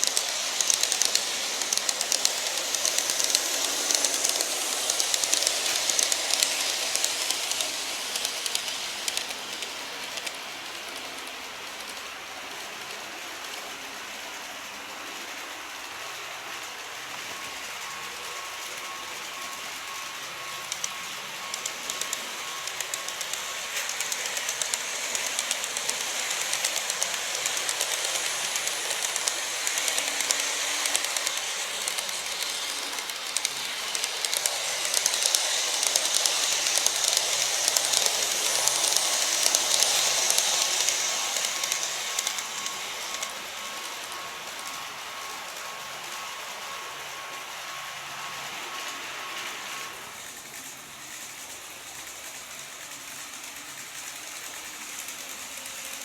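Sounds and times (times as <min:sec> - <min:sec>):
wheels clicking over rail joints: 0:00.0 - 0:12.1, 0:20.6 - 0:44.4
model train running: 0:00.0 - 0:56.0.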